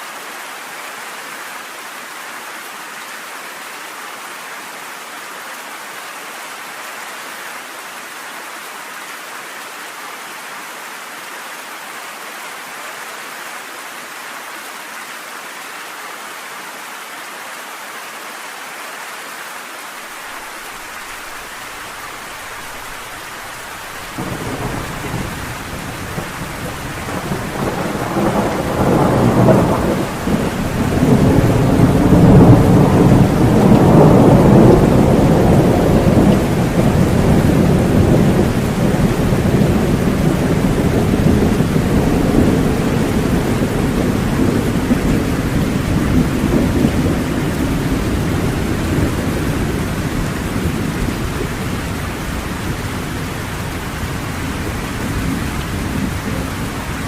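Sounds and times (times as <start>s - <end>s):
steady rain: 0.0s - 57.0s
thunder rumbling: 21.0s - 57.0s.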